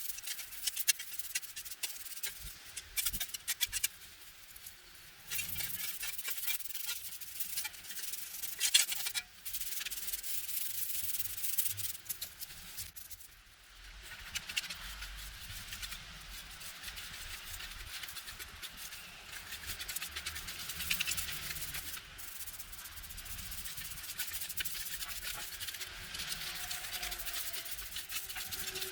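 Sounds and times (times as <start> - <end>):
scratchy rubbing on hard surface: 0.0 - 3.9, 5.3 - 13.2, 14.2 - 28.9.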